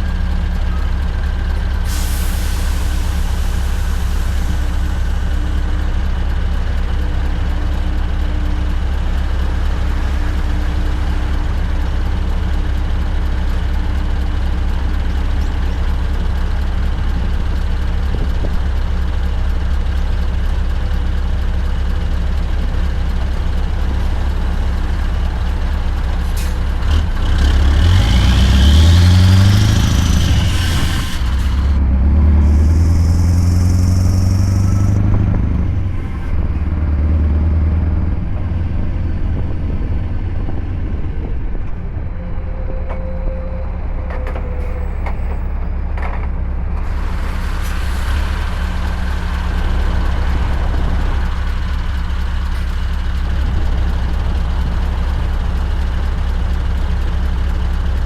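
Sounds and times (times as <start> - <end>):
truck engine running: 0.0 - 42.2, 43.9 - 58.0
air hiss: 1.9 - 5.2.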